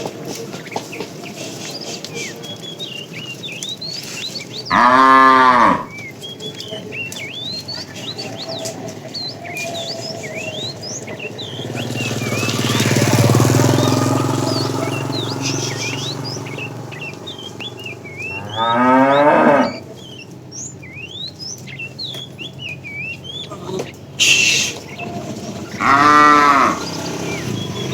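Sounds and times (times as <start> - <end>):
small birds chirping: 0.0 - 27.9
cattle mooing: 4.7 - 6.0, 7.7 - 20.0, 23.8 - 27.9.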